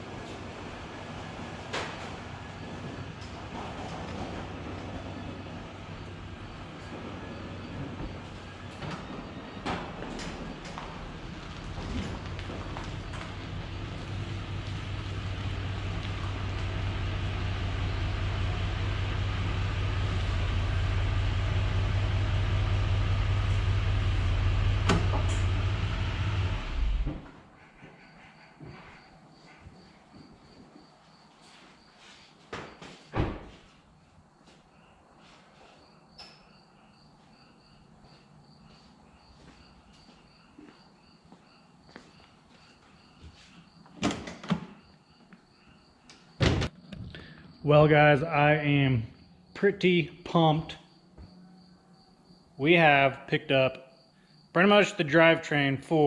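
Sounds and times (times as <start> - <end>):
road and wind noise: 0.0 - 27.3
vehicle engine hum: 0.0 - 27.5
cricket chirping: 27.6 - 33.1, 33.9 - 54.6.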